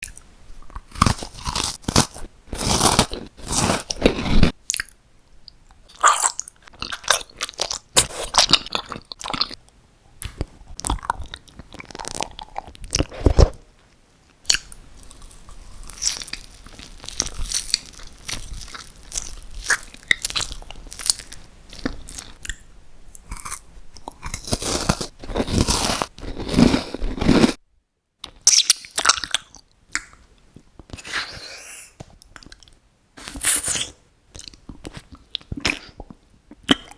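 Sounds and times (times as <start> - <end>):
crunchy bites and chewing: 0.0 - 5.0, 5.9 - 9.6, 10.2 - 13.6, 14.4 - 22.6, 23.2 - 27.6.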